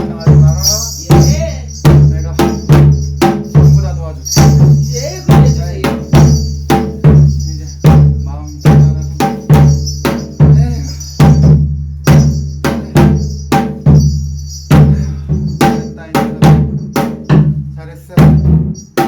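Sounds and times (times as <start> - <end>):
high metallic shimmer: 0.0 - 17.5
drum beaten in steady rhythm: 0.0 - 19.0.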